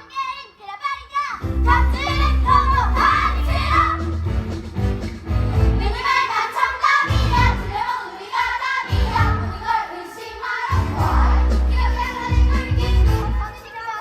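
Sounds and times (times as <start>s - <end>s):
backing track with bass beat: 1.4s - 6.0s
children singing: 1.6s - 4.1s, 5.8s - 14.0s.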